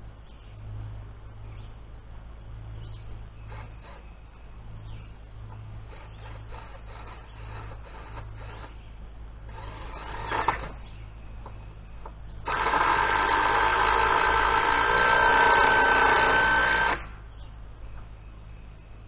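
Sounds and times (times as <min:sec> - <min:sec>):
small electric motor running: 0:05.9 - 0:08.8, 0:09.5 - 0:10.8, 0:12.4 - 0:17.2.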